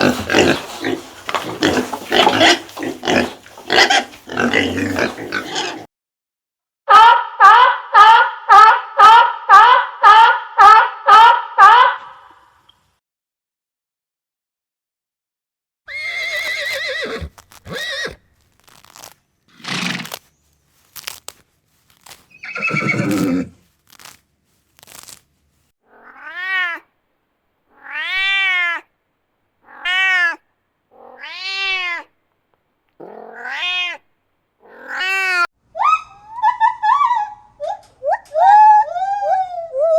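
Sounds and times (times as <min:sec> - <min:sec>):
cat meowing: 0:25.9 - 0:26.9, 0:27.7 - 0:28.9, 0:29.6 - 0:32.1, 0:33.0 - 0:35.5.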